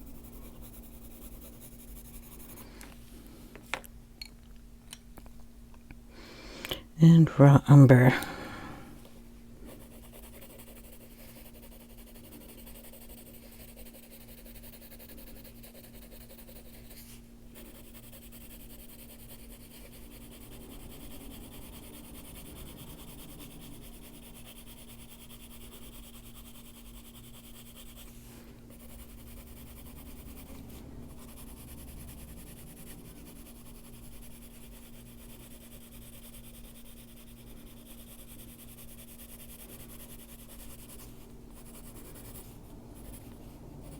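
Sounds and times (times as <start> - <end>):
coloured pencil scratching on paper: 0.0 - 2.7, 9.7 - 43.9
low hum: 0.0 - 3.4.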